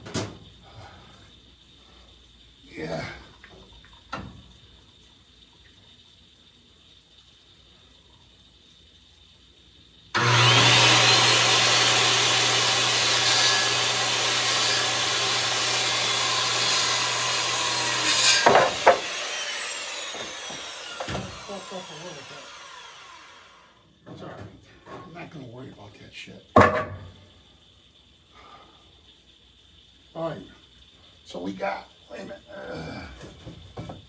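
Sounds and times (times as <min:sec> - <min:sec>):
circular saw cutting wood: 0:10.2 - 0:26.0.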